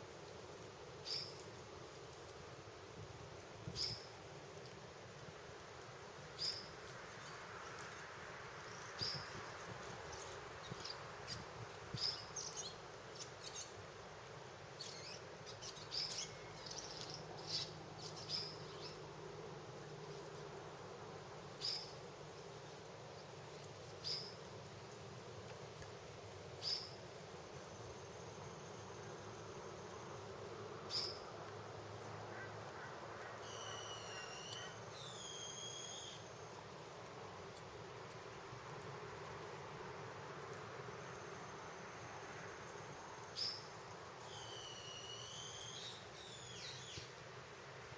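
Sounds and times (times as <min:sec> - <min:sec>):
steady hiss: 0:00.0 - 0:47.9
high whistles: 0:33.4 - 0:36.3, 0:44.3 - 0:46.6.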